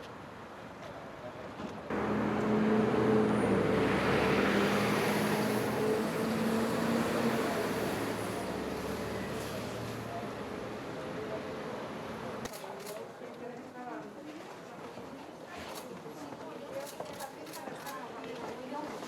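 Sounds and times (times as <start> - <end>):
engine rumbling: 1.9 - 9.8.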